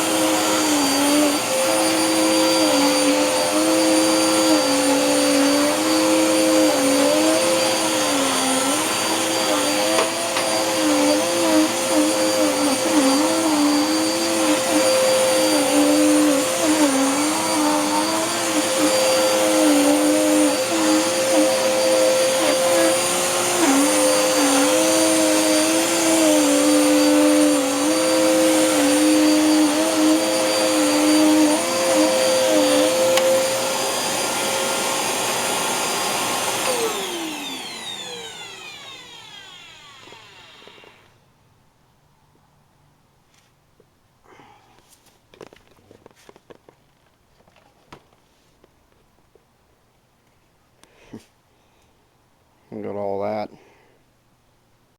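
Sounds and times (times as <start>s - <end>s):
nozzle working carpet: 0.0s - 41.1s
vacuum cleaner motor whine: 0.0s - 41.2s.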